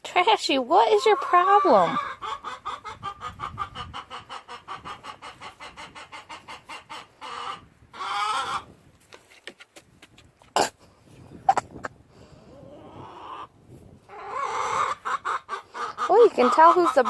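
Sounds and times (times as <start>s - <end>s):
hens clucking: 0.2s - 10.8s, 11.4s - 17.0s
hens squawking: 0.7s - 8.8s, 12.5s - 17.0s.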